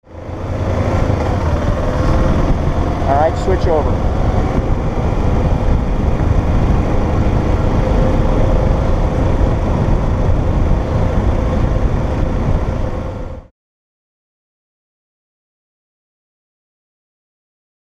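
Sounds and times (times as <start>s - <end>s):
motorcycle engine: 0.0s - 13.5s
road and wind noise: 0.0s - 13.5s.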